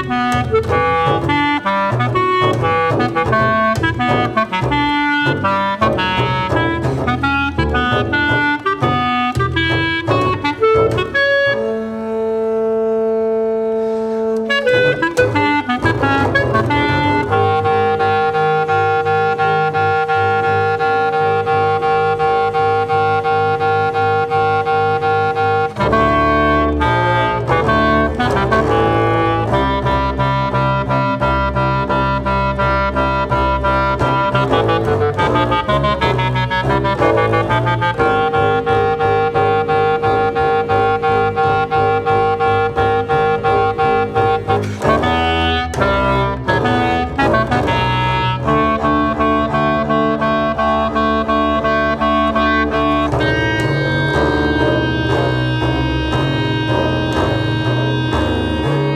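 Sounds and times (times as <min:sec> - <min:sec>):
clarinet: 0:00.0 - 0:58.9
double bass low notes: 0:00.0 - 0:58.9.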